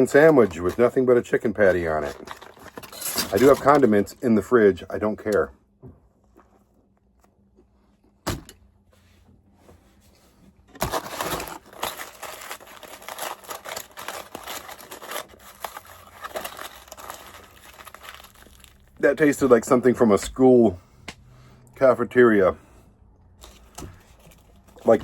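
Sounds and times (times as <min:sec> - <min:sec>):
paper wrapper crinkling: 0:00.0 - 0:04.0, 0:10.8 - 0:19.4, 0:23.4 - 0:25.0.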